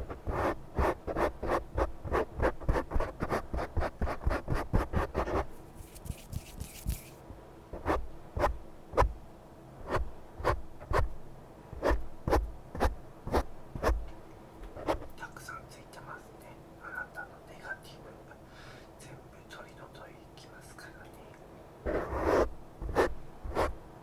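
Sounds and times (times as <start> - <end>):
scratching strokes: 0.0 - 7.2, 7.8 - 9.1, 11.8 - 14.0, 14.8 - 15.1, 21.9 - 23.8.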